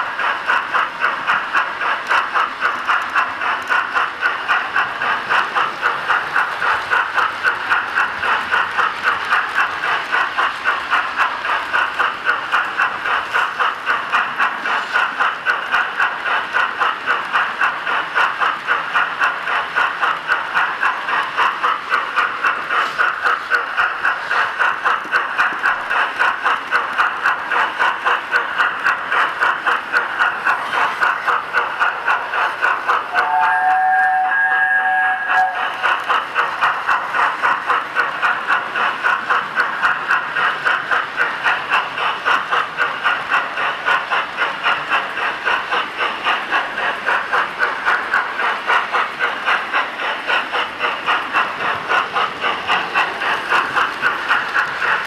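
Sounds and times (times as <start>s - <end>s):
steam hiss: 0.0s - 55.0s
steam chuffs from small speaker: 32.0s - 37.6s.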